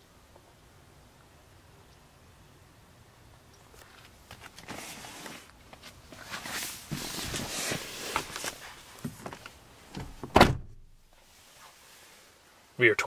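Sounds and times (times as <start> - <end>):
loud thump: 10.0 - 10.9.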